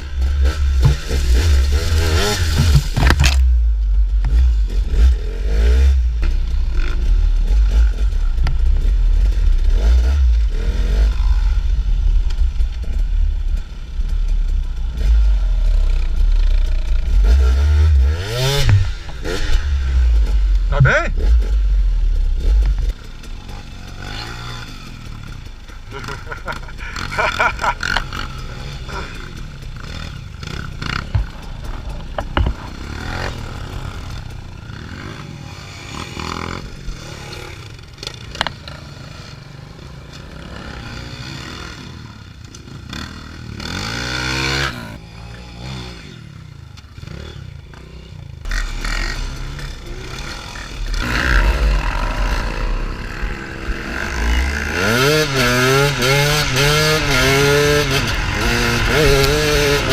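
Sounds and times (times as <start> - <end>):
motorcycle engines revving: 0.0 - 59.9
knocks and clatter: 0.3 - 3.5, 18.5 - 19.4, 30.4 - 33.4.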